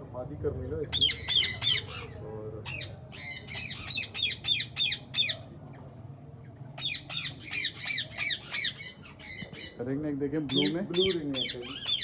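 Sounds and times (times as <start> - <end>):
parakeets screeching: 0.9 - 5.4, 6.8 - 9.8, 10.5 - 12.0.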